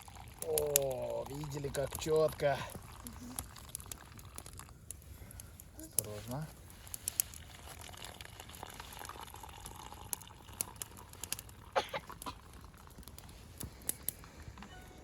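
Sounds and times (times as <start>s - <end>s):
campfire crackling: 0.0s - 15.0s
water seething in a kettle: 5.9s - 14.5s.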